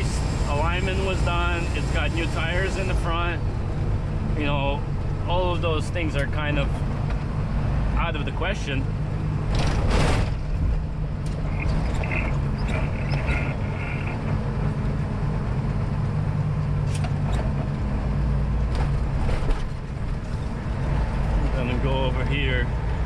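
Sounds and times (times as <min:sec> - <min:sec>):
truck diesel engine drone: 0:00.0 - 0:23.0.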